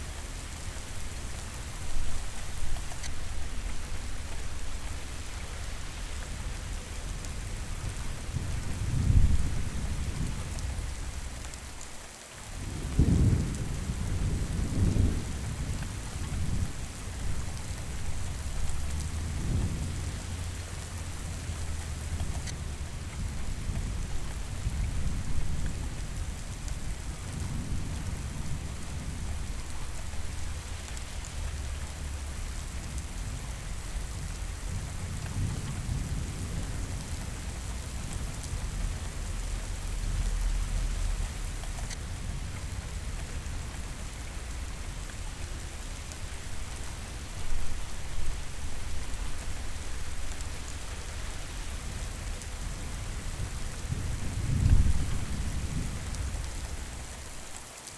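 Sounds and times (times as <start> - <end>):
heavy rain: 0.0 - 57.9
distant thunder rumbling: 12.5 - 57.3.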